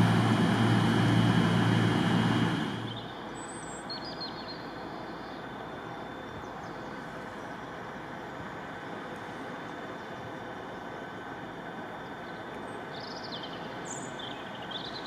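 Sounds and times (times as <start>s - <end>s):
train low hum: 0.0s - 3.4s.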